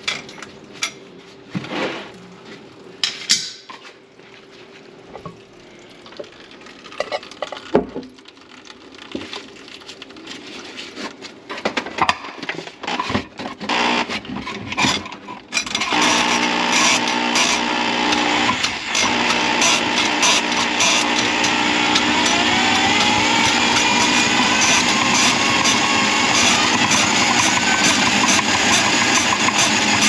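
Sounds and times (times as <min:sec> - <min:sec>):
small motor running: 0:13.7 - 0:14.1, 0:15.8 - 0:30.0.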